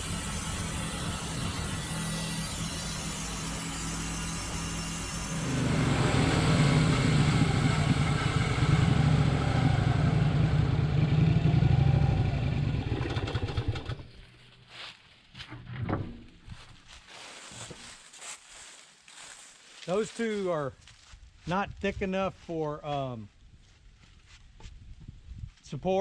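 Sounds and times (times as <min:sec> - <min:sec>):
sawmill engine running: 0:00.0 - 0:14.4.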